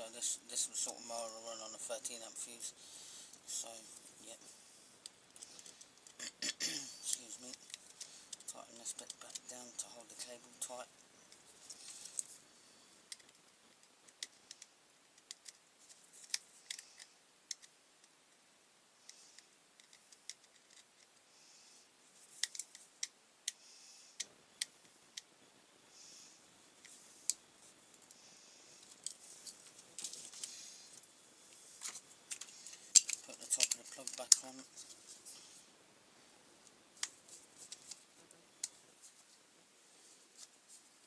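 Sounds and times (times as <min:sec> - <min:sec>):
screwdriver clicking and scraping: 0:31.8 - 0:34.6.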